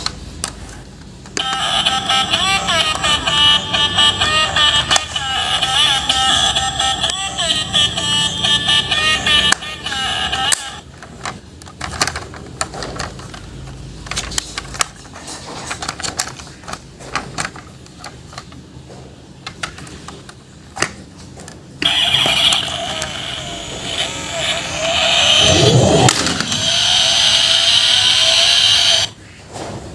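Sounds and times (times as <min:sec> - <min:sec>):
loud multi-tone sound: 0:01.4 - 0:10.8, 0:21.8 - 0:29.2
plastic toys clicking and knocking: 0:09.4 - 0:25.0.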